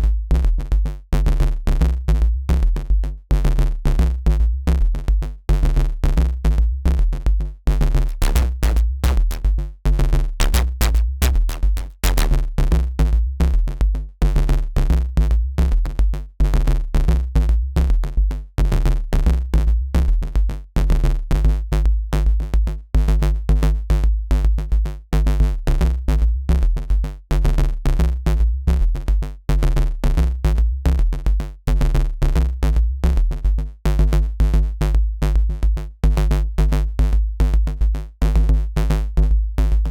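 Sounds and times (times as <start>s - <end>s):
percussive hits: 8.1s - 9.5s, 10.4s - 12.4s
choppy synth bass riff: 8.1s - 9.6s, 10.4s - 12.5s
heavy deep bass: 8.1s - 9.7s, 10.4s - 13.8s.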